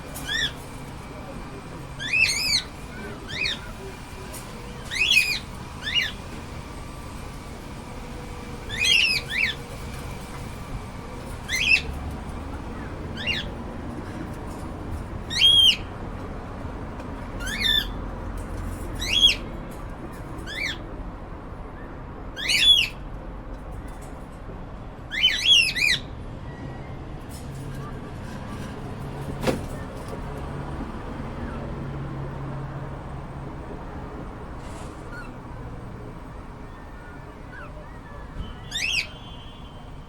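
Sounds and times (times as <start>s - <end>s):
cockatiels chirping: 0.2s - 0.6s, 2.0s - 3.8s, 4.8s - 6.2s, 8.7s - 9.7s, 11.4s - 11.9s, 12.8s - 13.6s, 15.3s - 15.9s, 17.4s - 18.0s, 19.0s - 19.4s, 20.4s - 20.8s, 22.4s - 23.0s, 25.1s - 26.1s, 37.1s - 39.4s.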